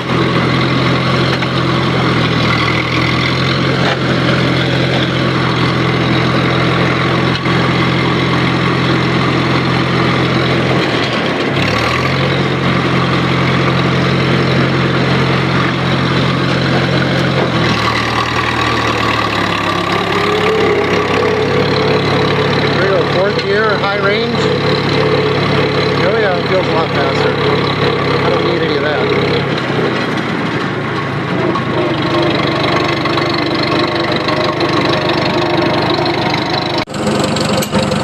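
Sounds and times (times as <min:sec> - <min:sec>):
tractor engine running: 0:00.0 - 0:38.0
rising whine: 0:12.3 - 0:29.0.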